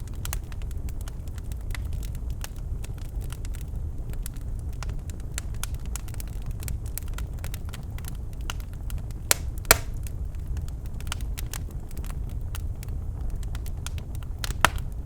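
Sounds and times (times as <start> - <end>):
fire crackling: 0.0 - 15.0
loud pops of fire: 0.0 - 15.0
low rumble of burning fire: 0.0 - 15.0.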